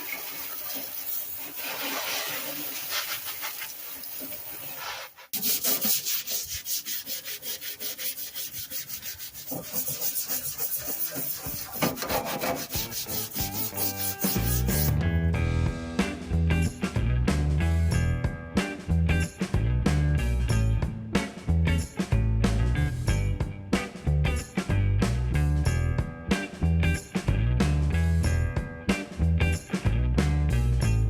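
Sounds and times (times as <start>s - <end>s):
scrubbing rusty metal toolbox: 0.5s - 15.0s.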